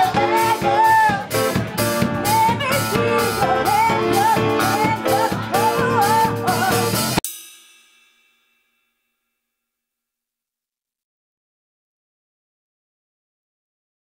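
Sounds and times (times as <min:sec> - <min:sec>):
man singing: 0:00.0 - 0:01.5, 0:02.2 - 0:07.2
electric guitar: 0:00.0 - 0:07.2
rock band playing: 0:00.0 - 0:07.2
steady drum beat: 0:00.0 - 0:08.4.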